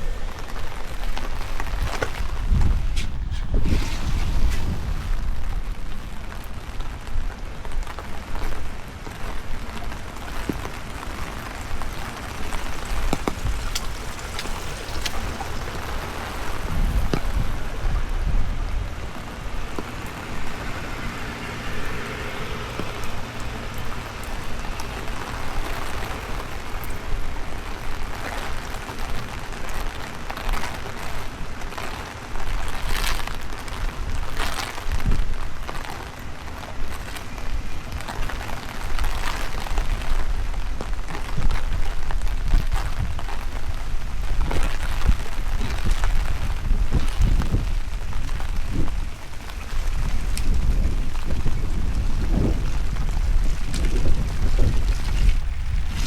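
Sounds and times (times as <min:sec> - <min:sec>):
steady rain falling: 0:00.0 - 0:56.0
wind rumbling on microphone: 0:00.0 - 0:56.0.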